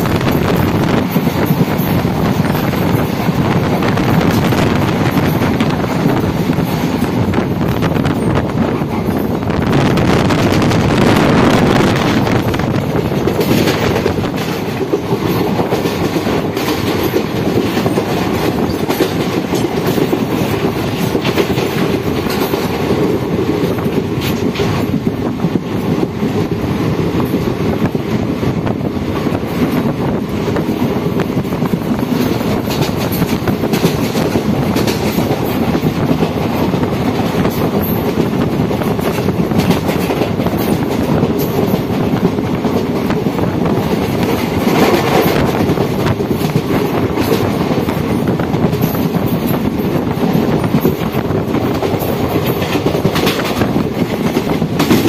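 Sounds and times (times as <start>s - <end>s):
train wheels rumbling on track: 0.0s - 55.0s.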